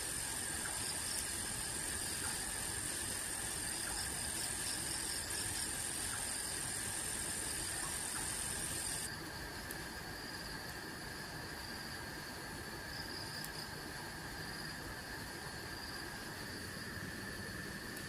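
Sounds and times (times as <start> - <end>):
continuous high trill: 0.0 - 9.7
night insects chirring: 0.0 - 18.0.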